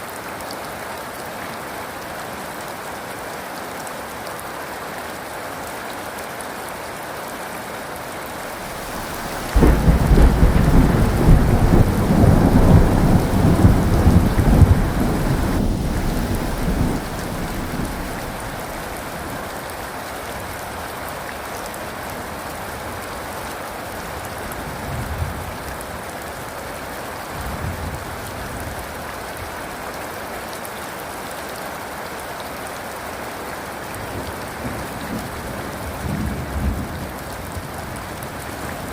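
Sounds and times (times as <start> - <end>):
heavy rain: 0.0 - 38.9
distant thunder rumbles: 8.6 - 19.1
thunder rumbling: 8.6 - 19.2.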